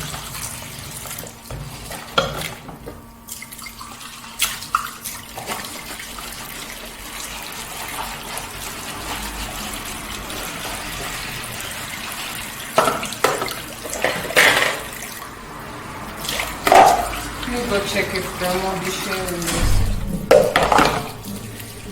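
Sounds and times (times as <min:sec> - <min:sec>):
dishes clattering: 0:12.8 - 0:15.0, 0:19.4 - 0:21.9
tap running into sink: 0:19.3 - 0:21.9.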